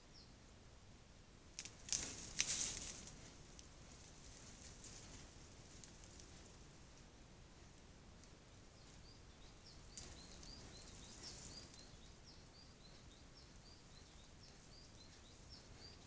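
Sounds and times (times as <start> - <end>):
steady background hiss: 0.0 - 16.0
small bird chirping: 8.3 - 16.0.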